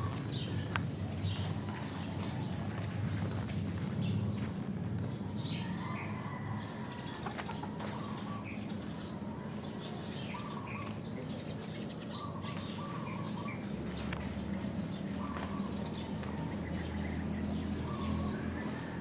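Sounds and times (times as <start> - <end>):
steady low rumble: 0.0 - 6.1
birds chirping: 0.0 - 19.0.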